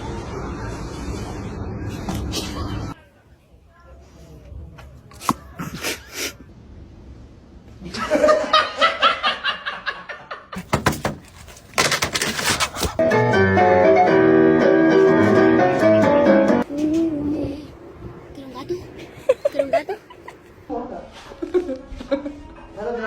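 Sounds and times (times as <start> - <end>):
people laughing: 7.8 - 10.6, 19.0 - 20.7
music with held notes: 13.0 - 16.6.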